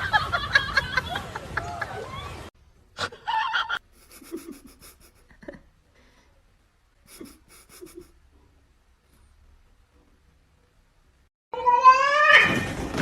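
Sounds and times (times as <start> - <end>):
high-pitched animal cry: 11.6 - 12.7.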